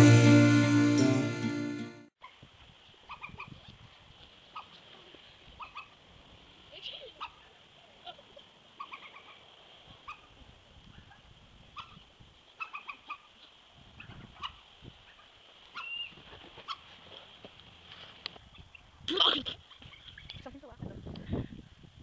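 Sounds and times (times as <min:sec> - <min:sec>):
animal chirps and clucks: 0:03.1 - 0:03.8, 0:05.6 - 0:06.0, 0:08.7 - 0:10.4, 0:12.6 - 0:16.9.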